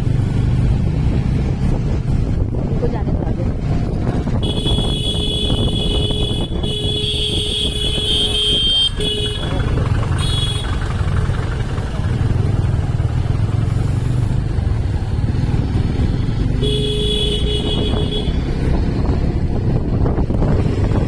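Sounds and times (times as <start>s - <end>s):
vehicle engine running: 0.0s - 21.0s
vehicle horn: 4.4s - 11.2s, 16.6s - 18.5s.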